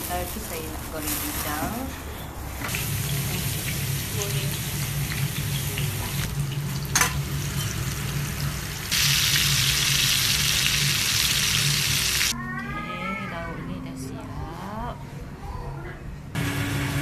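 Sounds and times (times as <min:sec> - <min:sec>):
hot oil sizzling in a pan: 0:02.7 - 0:12.3.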